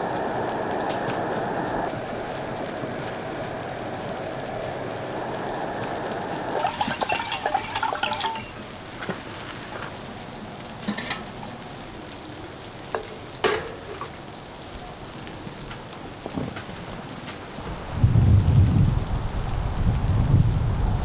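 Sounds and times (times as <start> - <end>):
steady sizzling hiss: 0.0 - 21.0
cookware and utensils clattering: 6.6 - 9.2, 10.8 - 11.5, 13.0 - 14.3.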